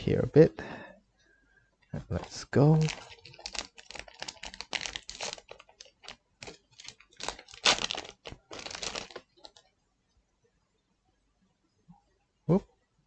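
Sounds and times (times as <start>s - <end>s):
wrapper crinkling and tearing: 2.2s - 9.6s.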